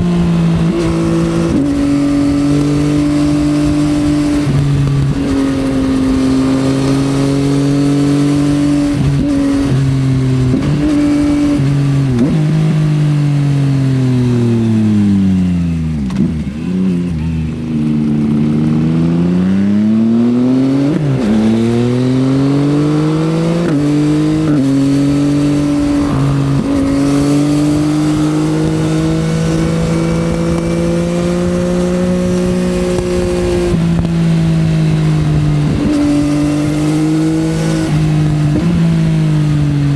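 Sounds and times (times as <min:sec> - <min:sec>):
motorcycle engine revving: 0:00.0 - 0:39.9
wind on microphone: 0:20.3 - 0:39.9.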